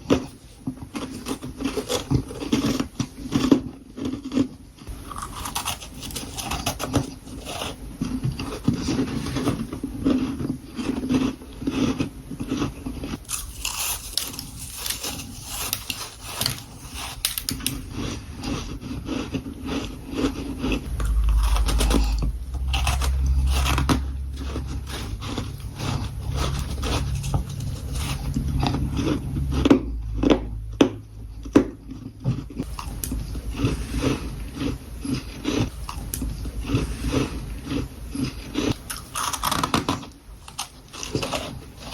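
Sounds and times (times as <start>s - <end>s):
chewing crunchy frost: 0.0s - 41.9s
low rumble: 17.7s - 38.2s.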